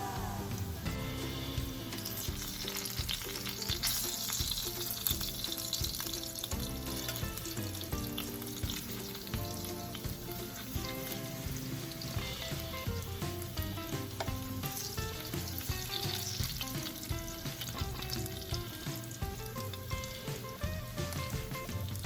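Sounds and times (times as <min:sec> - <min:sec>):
pork slices sizzling in a pan: 0:00.0 - 0:22.0
sharp pops and clicks: 0:12.6 - 0:20.4.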